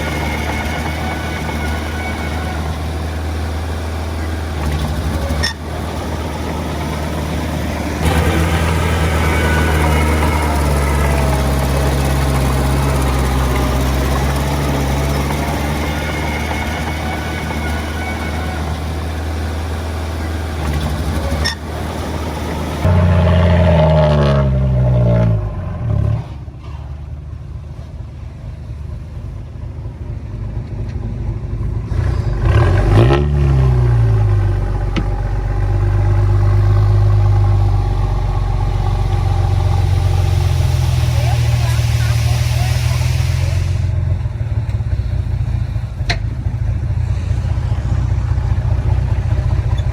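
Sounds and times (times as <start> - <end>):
diesel engine revving: 0.0 - 49.9.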